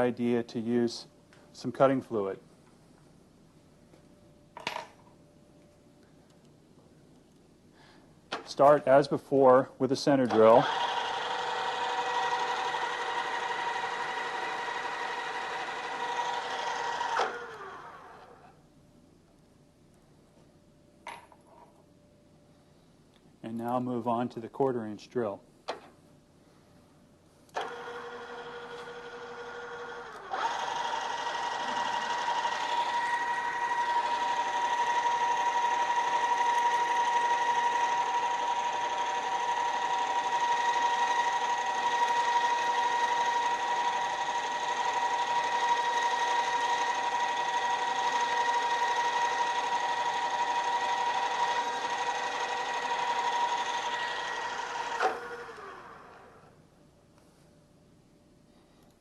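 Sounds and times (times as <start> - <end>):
drill press drilling into metal: 10.3 - 18.4, 27.6 - 56.4.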